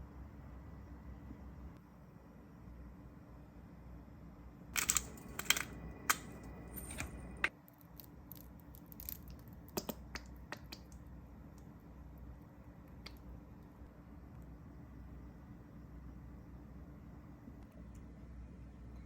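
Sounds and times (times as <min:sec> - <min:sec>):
low steady hum: 0:00.0 - 0:19.0
handling crinkles and clicks: 0:04.8 - 0:09.5.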